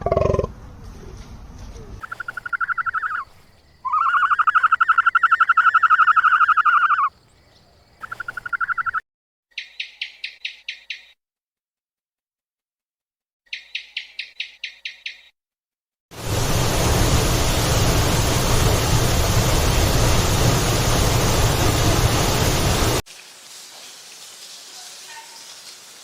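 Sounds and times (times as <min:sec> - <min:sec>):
animal trills: 0:02.0 - 0:07.1, 0:08.0 - 0:09.0
animal sharp chirps: 0:02.0 - 0:09.0.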